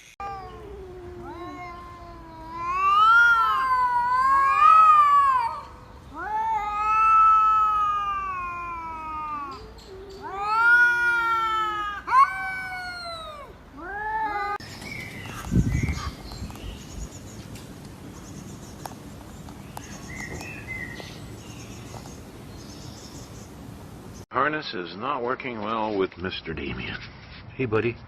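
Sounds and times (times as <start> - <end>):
cat yowling: 0.2 - 14.6.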